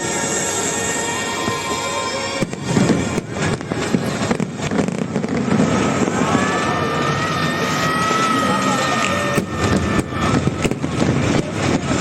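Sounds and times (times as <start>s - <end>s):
music: 0.0s - 5.3s
fireworks bangs and crackles: 0.0s - 12.0s.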